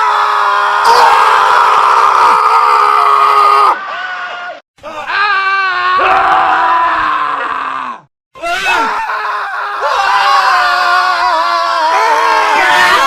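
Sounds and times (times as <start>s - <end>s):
men screaming: 0.0s - 13.0s.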